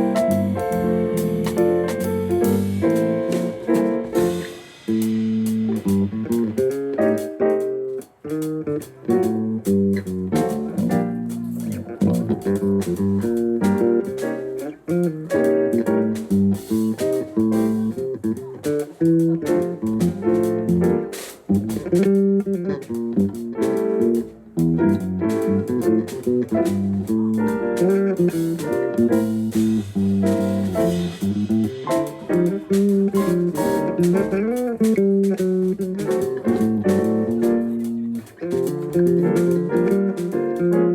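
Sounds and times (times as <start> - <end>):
band playing: 0.0 - 7.4, 8.4 - 40.9
bass guitar: 0.0 - 40.9
electric guitar: 0.0 - 40.9.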